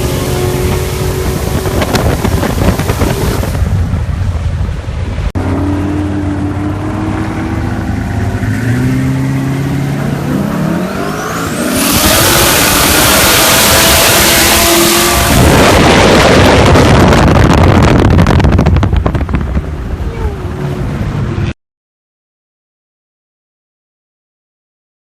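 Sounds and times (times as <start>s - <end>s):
car engine revving hard: 5.4s - 18.8s.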